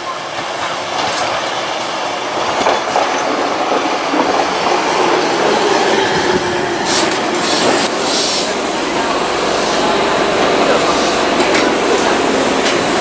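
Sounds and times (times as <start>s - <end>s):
rail clicks: 0.0s - 13.0s
train rolling on track: 0.0s - 13.0s.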